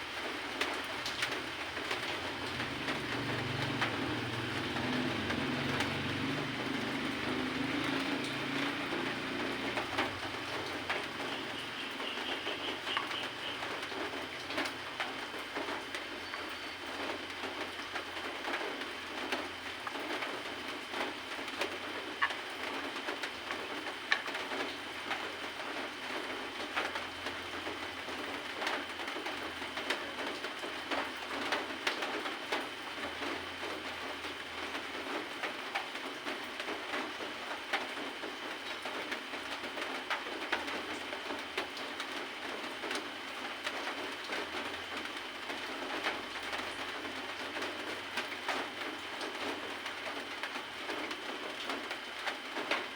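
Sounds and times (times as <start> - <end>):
small clicks and ticks: 21.0 - 25.3.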